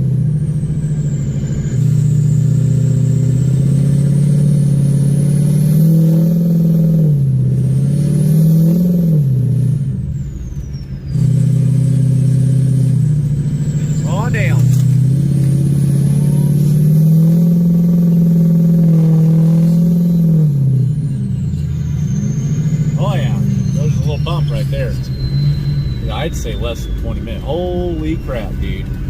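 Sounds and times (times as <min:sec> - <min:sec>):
diesel truck engine under throttle: 0:00.0 - 0:29.0
faint high whistle: 0:10.1 - 0:11.3, 0:15.9 - 0:16.9, 0:20.0 - 0:29.0.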